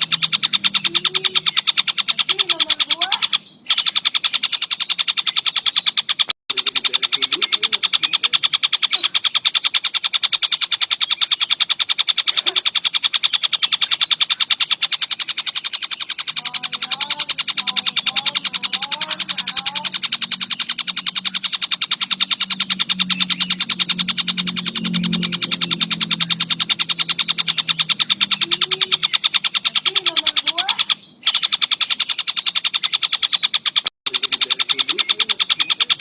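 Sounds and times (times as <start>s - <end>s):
kingfisher chattering: 0.0s - 36.0s
low hum: 11.3s - 32.3s.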